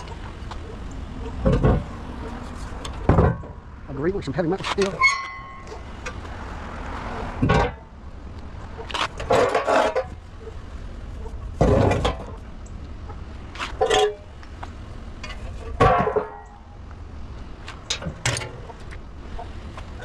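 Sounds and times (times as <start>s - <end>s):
scrap steel clanging: 4.6s - 6.2s, 8.9s - 10.2s, 11.2s - 12.5s, 13.6s - 14.4s, 15.2s - 16.8s.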